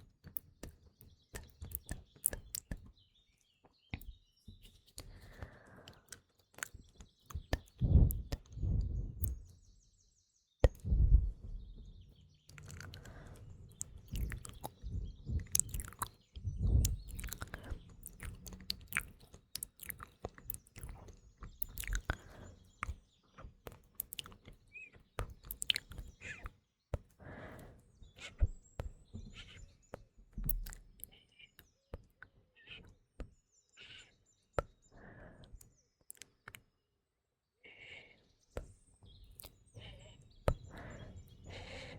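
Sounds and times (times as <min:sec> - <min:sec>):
faint birdsong chirps: 0:00.0 - 0:41.9
wet mouth clicks and lip smacks: 0:00.3 - 0:02.9, 0:04.9 - 0:09.4, 0:12.5 - 0:23.0, 0:23.6 - 0:24.6, 0:25.2 - 0:26.5, 0:30.5 - 0:31.2, 0:36.1 - 0:36.6, 0:39.4 - 0:39.6.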